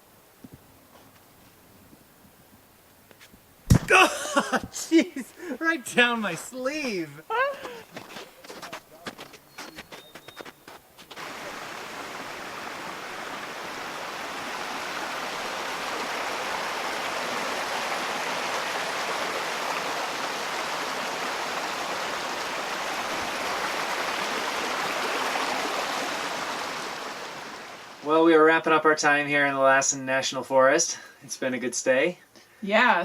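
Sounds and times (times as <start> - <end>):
stream water rushing: 3.9 - 8.2, 11.0 - 28.2.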